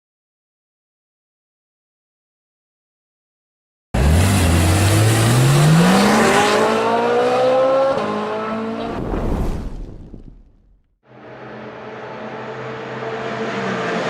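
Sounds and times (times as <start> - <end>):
car engine accelerating hard: 4.0 - 9.0, 11.1 - 14.0.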